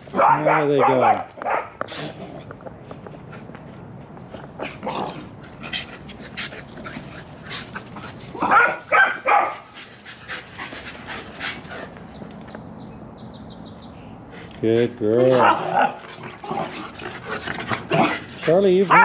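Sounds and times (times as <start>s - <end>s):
dog bark-like calls: 0.1s - 1.8s, 8.4s - 9.6s.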